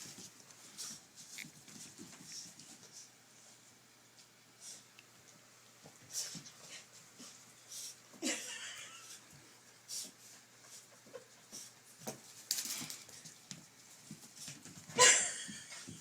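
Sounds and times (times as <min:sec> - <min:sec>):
animals scuffling: 0:00.0 - 0:08.1, 0:09.1 - 0:16.0.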